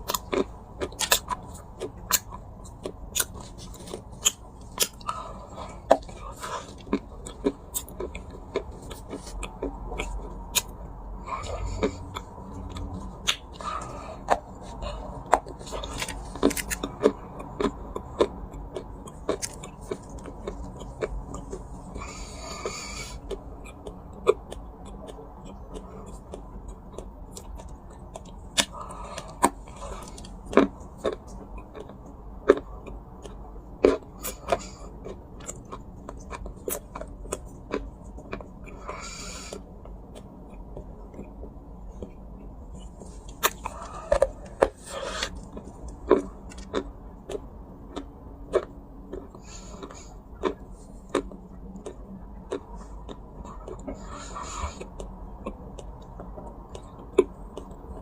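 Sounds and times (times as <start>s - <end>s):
dry clay crunching: 11.3s - 22.2s.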